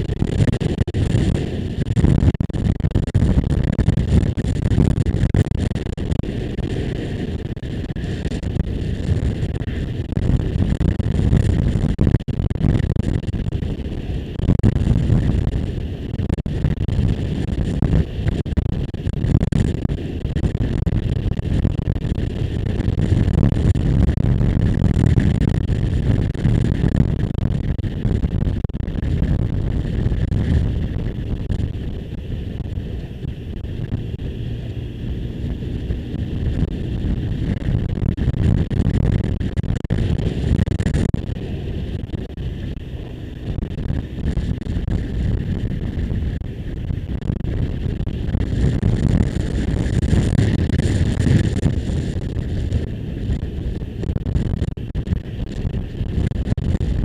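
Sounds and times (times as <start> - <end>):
wind rushing over microphone: 0.0 - 57.0
motorcycle engine running: 29.2 - 38.2.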